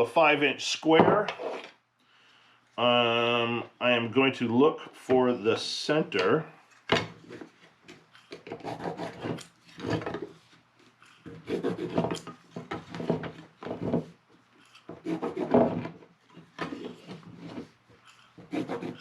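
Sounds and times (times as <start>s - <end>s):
scraping strokes on wood: 8.2s - 19.0s.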